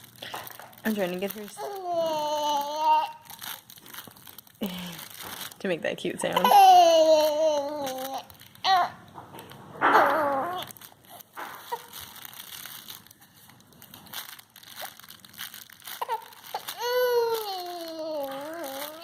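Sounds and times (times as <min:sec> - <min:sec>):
baby squealing and cooing: 0:01.6 - 0:03.4, 0:06.3 - 0:09.1, 0:09.8 - 0:12.2, 0:15.9 - 0:19.0
handling rustle and clicks: 0:07.0 - 0:19.0.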